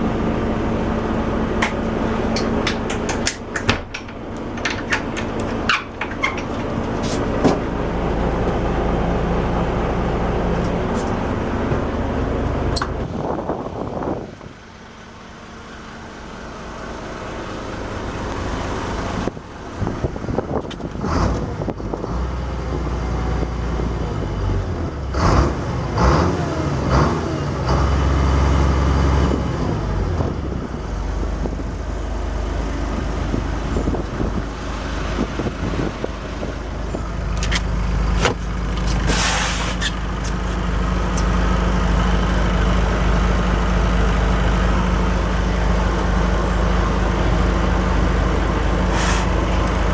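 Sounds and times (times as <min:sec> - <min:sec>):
boat engine deep rumble: 0:00.0 - 0:49.9
knocks and clatter: 0:01.6 - 0:07.7.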